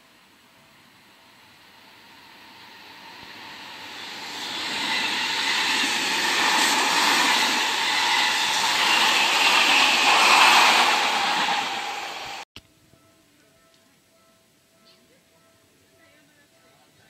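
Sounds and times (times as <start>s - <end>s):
train wheels rushing on rails: 0.0s - 12.4s
faint high whine: 0.0s - 17.0s.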